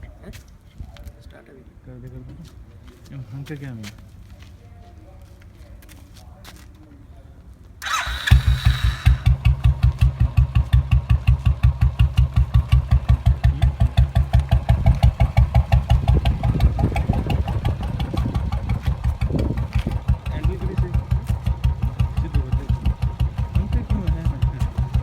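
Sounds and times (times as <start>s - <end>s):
motorcycle engine idling: 7.8s - 25.0s.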